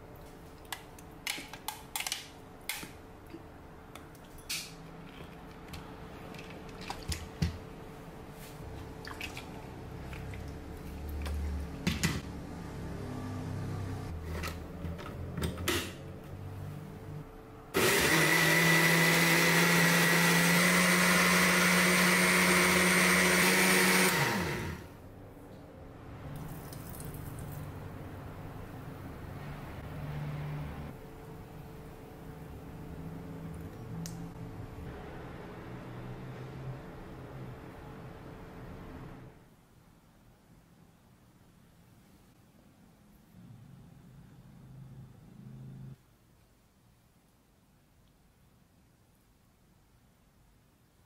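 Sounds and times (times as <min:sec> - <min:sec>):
blender running: 0:17.8 - 0:24.9.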